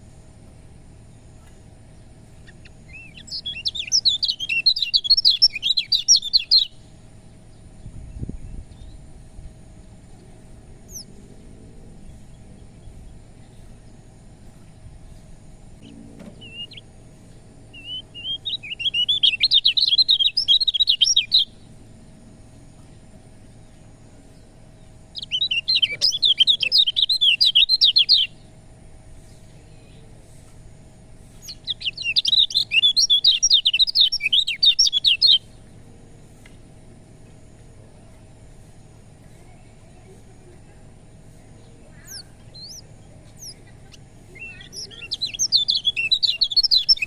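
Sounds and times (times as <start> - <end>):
white-eye bird chattering song: 0.0 - 9.1, 10.0 - 22.0, 22.8 - 47.0.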